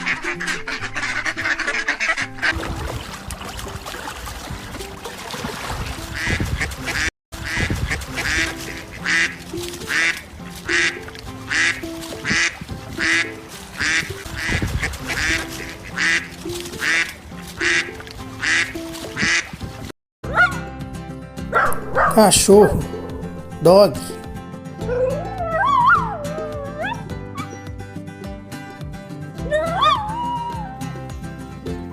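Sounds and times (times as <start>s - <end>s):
duck quacking: 0.0s - 2.6s, 6.1s - 19.5s
background music: 0.0s - 31.9s.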